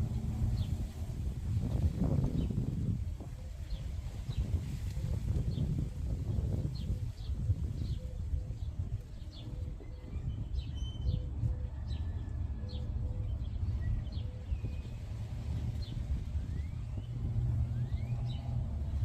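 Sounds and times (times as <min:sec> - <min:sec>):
low rumble: 0:00.0 - 0:03.3.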